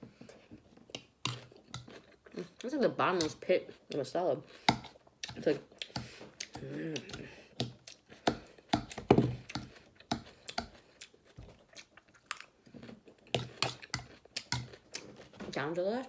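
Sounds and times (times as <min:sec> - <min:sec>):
person chewing crunchy greens: 0:00.0 - 0:16.0.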